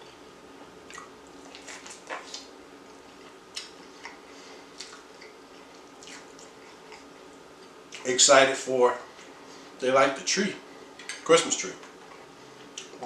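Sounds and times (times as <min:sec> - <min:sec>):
soft crunches while chewing: 0:00.0 - 0:08.1.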